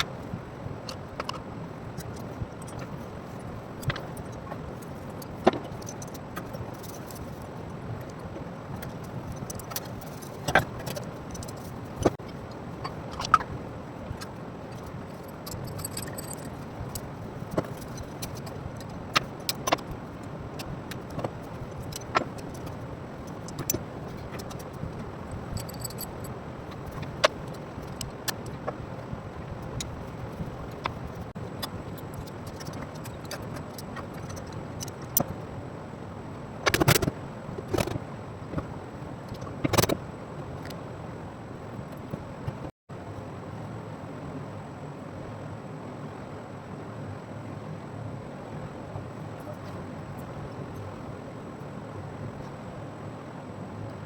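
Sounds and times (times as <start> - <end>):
low background hum: 0.0 - 54.0
metal tools clinking: 15.2 - 18.9, 25.5 - 26.3.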